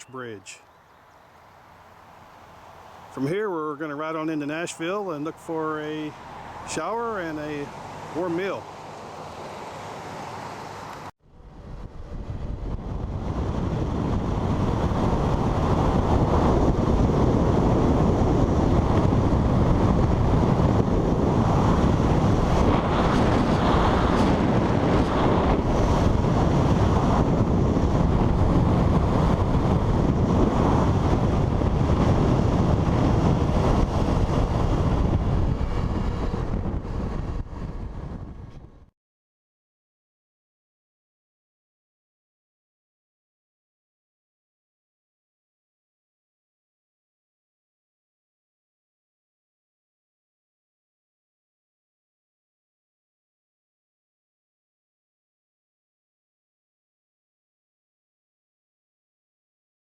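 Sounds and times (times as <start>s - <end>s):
wind buffeting microphone: 11.4s - 38.9s.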